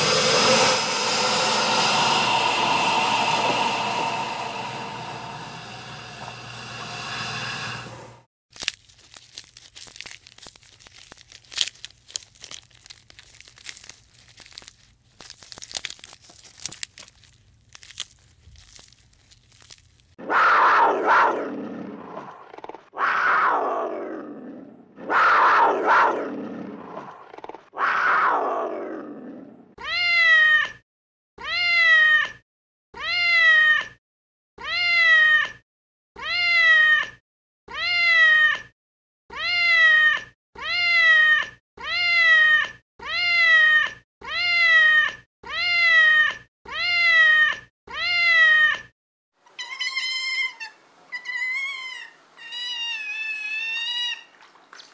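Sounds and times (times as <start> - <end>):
cat meowing: 29.8 - 30.8, 31.4 - 32.4, 33.0 - 34.0, 34.6 - 35.6, 36.2 - 38.7, 39.3 - 48.9, 49.5 - 54.3.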